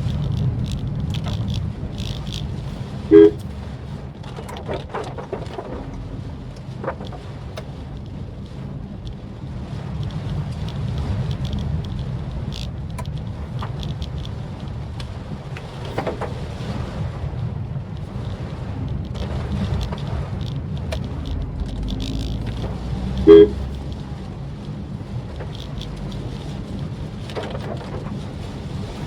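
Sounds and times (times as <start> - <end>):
car engine and road rumble: 0.0 - 29.0
light ticks of rain: 0.0 - 29.0
car horn toot: 3.1 - 3.5, 23.1 - 23.8.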